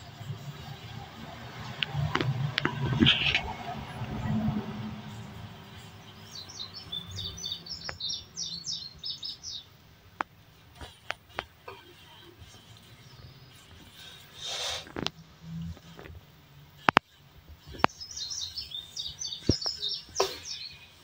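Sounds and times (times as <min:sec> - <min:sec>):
small bird chirping: 0:05.1 - 0:09.7, 0:17.6 - 0:21.0.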